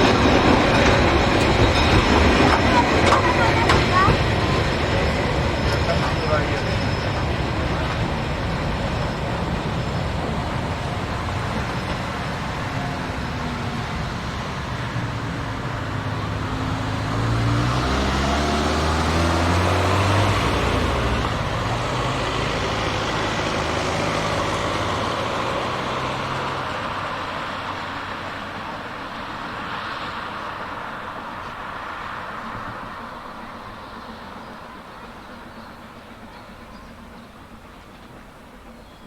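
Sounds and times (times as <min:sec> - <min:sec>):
traffic noise: 0:00.0 - 0:39.0
vehicle engine passing by: 0:14.6 - 0:27.9.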